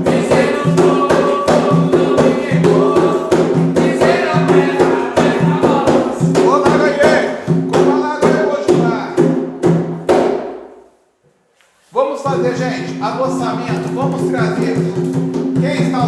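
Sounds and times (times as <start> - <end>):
group singing: 0.0 - 7.9
steady drum beat: 0.0 - 10.6, 12.3 - 16.0.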